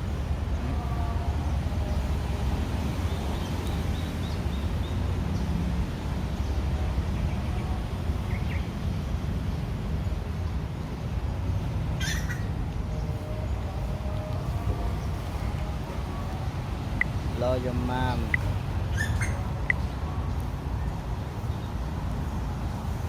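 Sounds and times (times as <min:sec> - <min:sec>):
sharp bird call: 0:12.0 - 0:12.6
faint bird chirps: 0:12.0 - 0:13.2.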